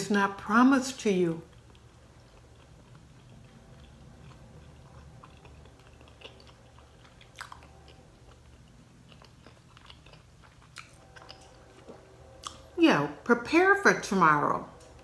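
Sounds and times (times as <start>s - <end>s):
person chewing food: 1.4s - 12.7s.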